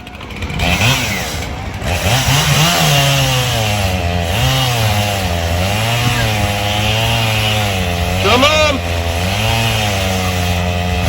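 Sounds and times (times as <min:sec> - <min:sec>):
chainsaw cutting a log: 0:00.0 - 0:11.0.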